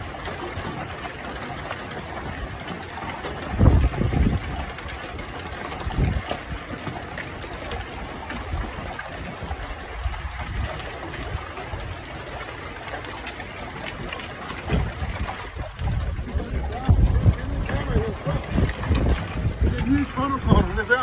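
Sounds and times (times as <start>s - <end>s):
wind buffeting microphone: 0.0s - 21.0s
rushing wind: 3.4s - 4.8s, 5.8s - 6.6s, 14.7s - 21.0s.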